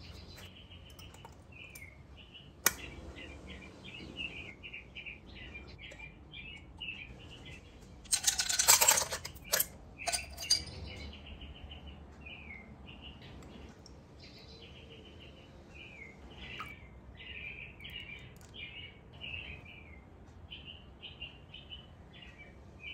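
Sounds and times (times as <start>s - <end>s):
small birds chirping: 0.0s - 22.9s
rapid clinking: 8.0s - 11.1s.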